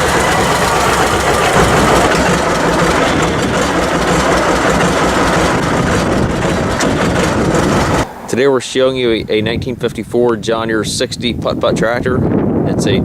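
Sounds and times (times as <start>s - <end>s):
tractor engine idling: 0.0s - 10.2s.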